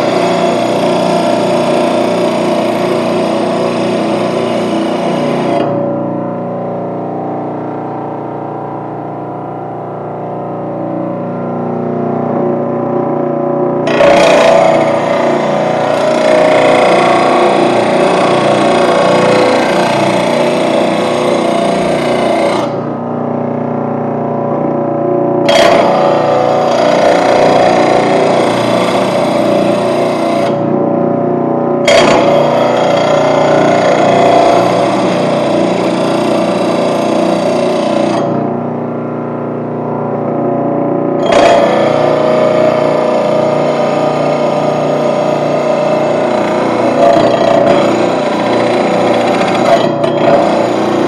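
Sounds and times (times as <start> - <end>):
grinder motor hum: 0.0 - 51.0
rough grinding of metal blade: 13.9 - 22.8, 41.2 - 51.0.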